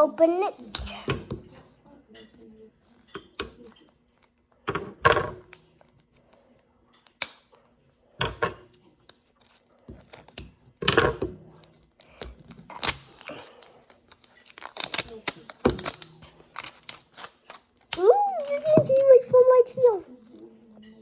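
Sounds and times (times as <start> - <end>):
packaging crinkling and clicking: 12.0 - 19.9.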